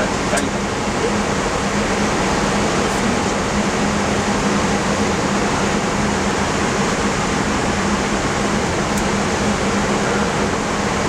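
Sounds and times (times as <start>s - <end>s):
cockpit air and ventilation rush: 0.0s - 11.0s
constant low hum: 0.0s - 11.0s.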